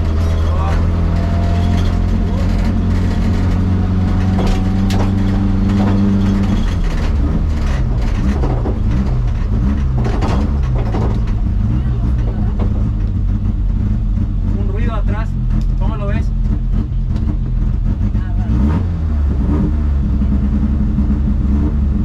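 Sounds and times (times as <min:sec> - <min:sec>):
clicks and knocks: 0:00.0 - 0:13.2
car engine revving: 0:00.0 - 0:22.0.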